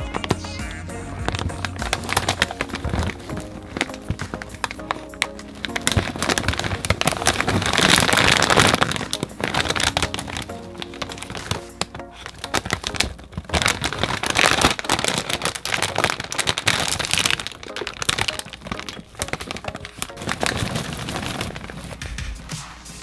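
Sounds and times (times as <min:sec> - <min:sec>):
snack packaging crinkling: 0:00.0 - 0:22.5.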